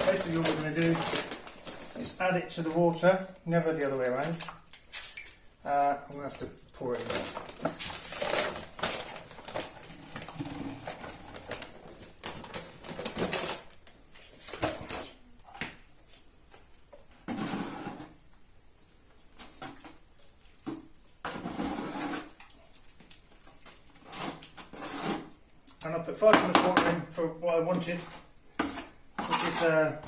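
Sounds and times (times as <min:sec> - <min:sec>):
paper bag rustling: 0:00.0 - 0:03.1, 0:06.1 - 0:15.3
powder pouring into water: 0:00.0 - 0:13.8.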